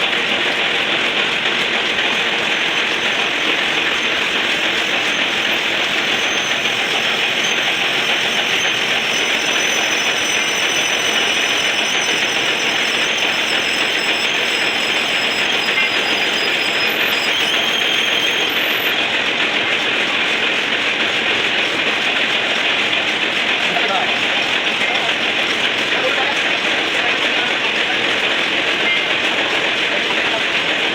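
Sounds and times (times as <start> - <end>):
lathe running: 0.0 - 19.3.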